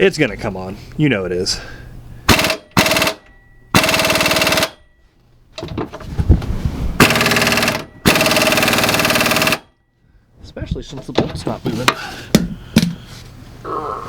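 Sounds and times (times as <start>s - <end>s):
impact wrench hammering: 2.3s - 4.9s, 7.0s - 9.7s
loose knocks: 5.6s - 6.5s.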